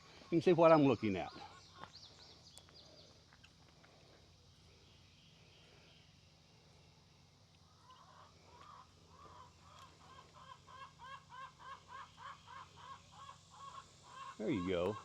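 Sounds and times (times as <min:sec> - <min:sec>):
chickens cackling: 0:07.8 - 0:15.0.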